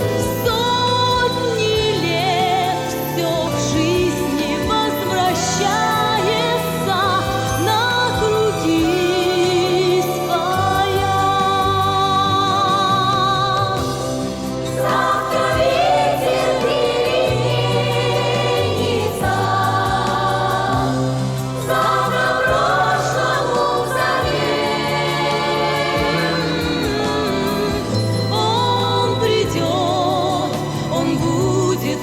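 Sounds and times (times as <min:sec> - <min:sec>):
wordless choral singing: 0:00.0 - 0:32.0
bass chords: 0:10.6 - 0:32.0.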